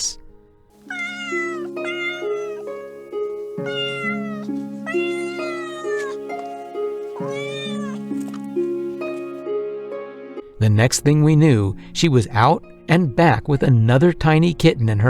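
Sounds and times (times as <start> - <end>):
cat meowing: 0.8 - 9.4.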